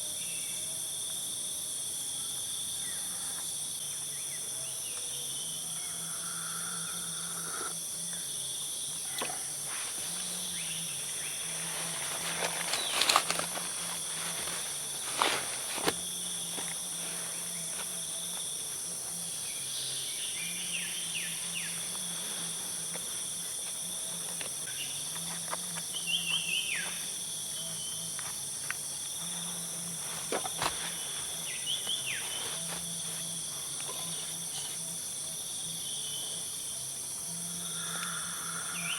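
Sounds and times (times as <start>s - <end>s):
high-pitched insect chorus: 0.0s - 38.9s
low droning call: 5.8s - 7.7s.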